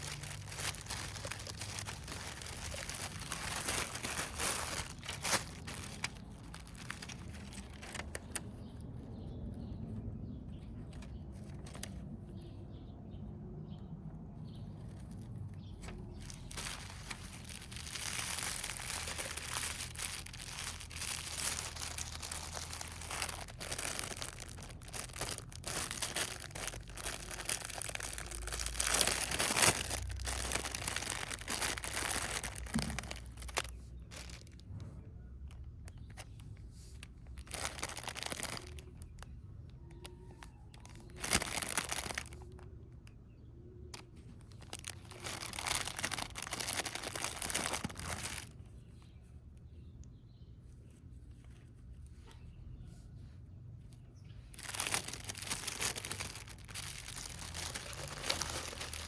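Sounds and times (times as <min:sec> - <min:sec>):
plastic rustling and crackling: 0:00.0 - 0:09.0, 0:14.8 - 0:34.8, 0:35.5 - 0:42.7, 0:44.0 - 0:49.2, 0:54.2 - 0:59.0.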